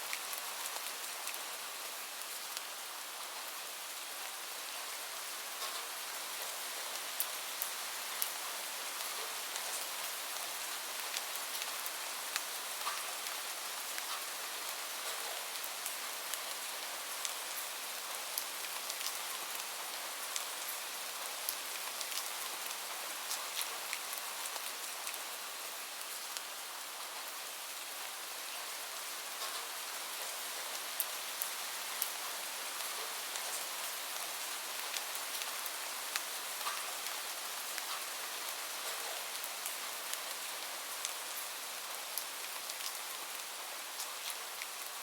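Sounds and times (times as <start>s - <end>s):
steady rain hiss: 0.0s - 45.0s
sharp rain ticks: 5.6s - 5.9s, 11.0s - 13.1s, 29.4s - 32.2s, 32.8s - 44.9s.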